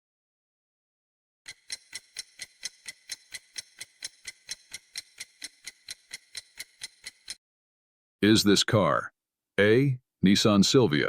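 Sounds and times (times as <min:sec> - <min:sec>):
clock ticking: 0:01.5 - 0:07.4.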